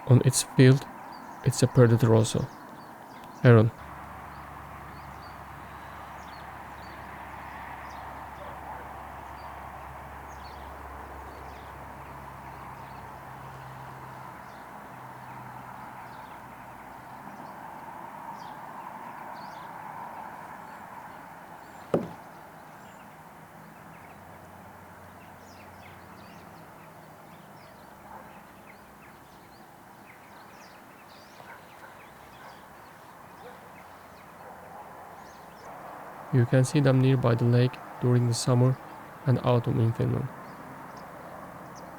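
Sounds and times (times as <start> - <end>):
outdoor background noise: 0.0 - 41.9
sharp knock: 22.0 - 22.2.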